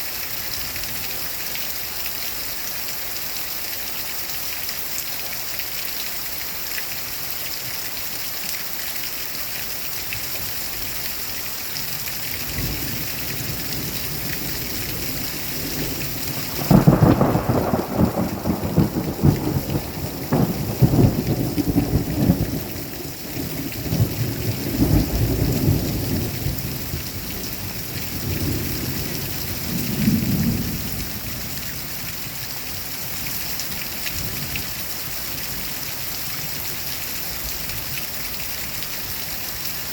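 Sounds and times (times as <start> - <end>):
rain hissing: 6.1 - 39.9
thunder rumbling: 12.5 - 31.5
loud thunderclap: 15.7 - 23.0.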